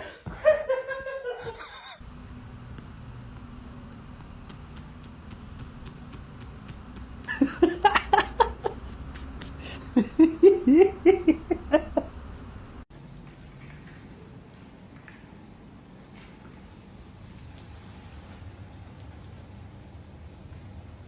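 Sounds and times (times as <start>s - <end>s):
person laughing: 7.2s - 12.8s.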